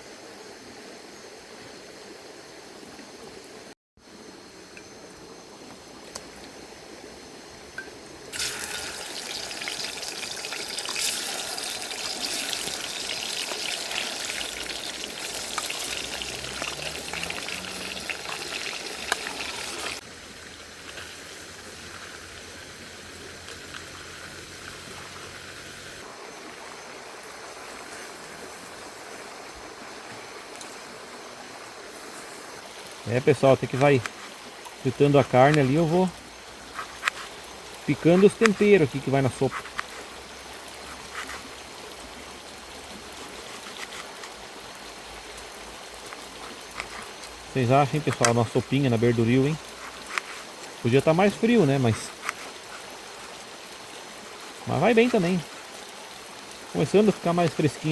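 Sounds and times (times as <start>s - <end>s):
soft steady hiss: 0.0s - 57.9s
chicken sizzling in hot oil: 8.3s - 26.0s.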